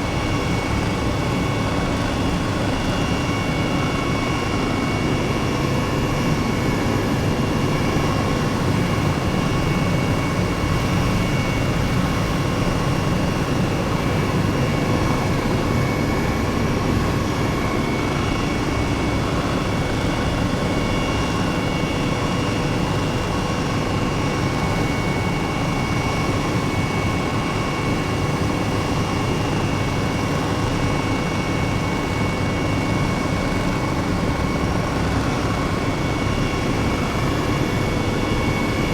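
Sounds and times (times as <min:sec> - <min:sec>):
helicopter engine and rotor: 0:00.0 - 0:38.9.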